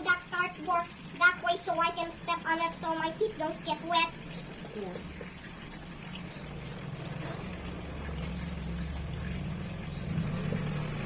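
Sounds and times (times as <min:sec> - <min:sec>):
low engine hum: 0:04.2 - 0:11.0.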